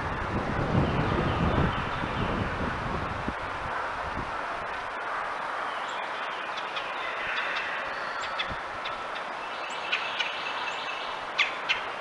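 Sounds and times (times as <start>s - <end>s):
birds chirping: 0.7s - 2.6s, 5.3s - 12.0s.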